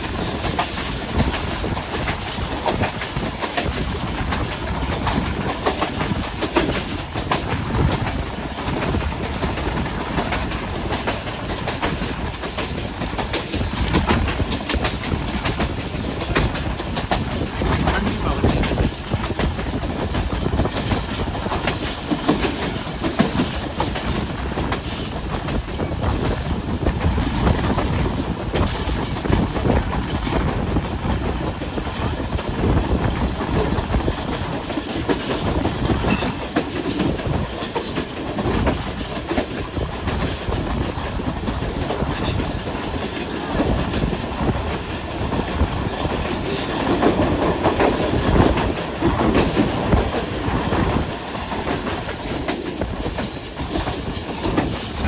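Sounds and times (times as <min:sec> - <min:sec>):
train rumbling on track: 0:00.0 - 0:55.0
wheels clicking over rail joints: 0:00.0 - 0:55.0.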